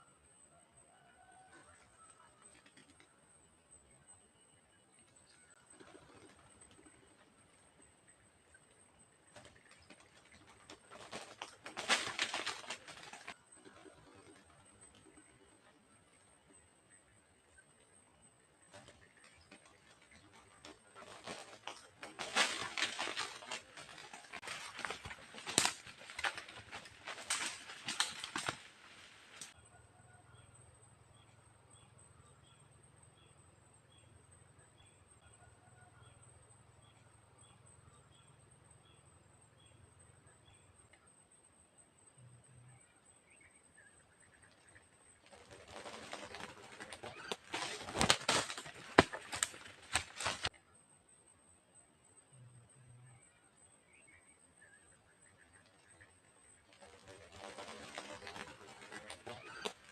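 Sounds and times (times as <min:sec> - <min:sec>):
birds rustling in tree: 0:05.0 - 0:16.5, 0:18.6 - 0:29.6, 0:44.2 - 0:50.6, 0:55.2 - 0:59.9
pigeon wings flapping: 0:09.3 - 0:15.5, 0:18.7 - 0:29.6, 0:45.2 - 0:50.5, 0:56.7 - 0:59.9
branch snaps: 0:21.2 - 0:29.5, 0:47.2 - 0:50.5.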